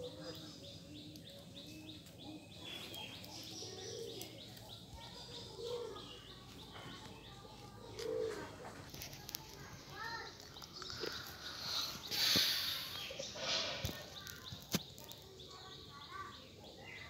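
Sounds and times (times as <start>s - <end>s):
birds cooing: 0.0s - 9.0s, 10.6s - 14.6s.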